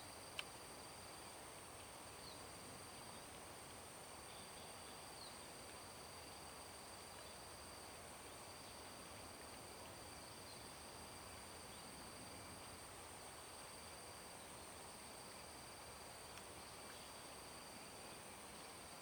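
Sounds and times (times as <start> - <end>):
faint outdoor hiss: 0.0 - 19.0
insects droning: 0.0 - 19.0.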